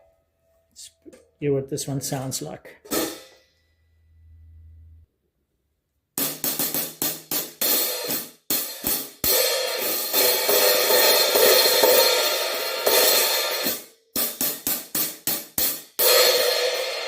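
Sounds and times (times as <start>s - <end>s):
hi-hats played with a stick: 6.2s - 17.0s.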